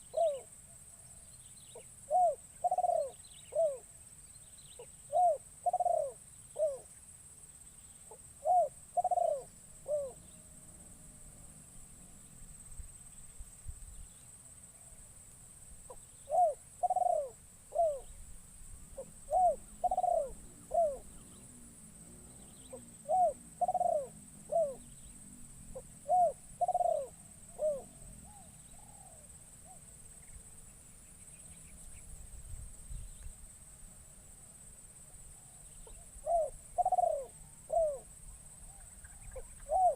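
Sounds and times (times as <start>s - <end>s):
dove cooing: 0.0s - 0.5s, 1.8s - 3.9s, 4.8s - 6.9s, 8.1s - 10.4s, 15.9s - 18.2s, 18.9s - 29.9s, 35.4s - 39.9s.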